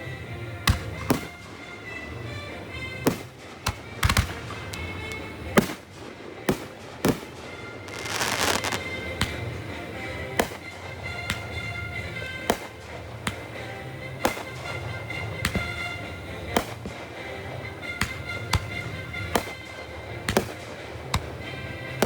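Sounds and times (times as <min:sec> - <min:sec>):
background music: 0:00.0 - 0:22.0
firework bangs: 0:00.7 - 0:22.0
hissing firework crackle: 0:03.0 - 0:13.6.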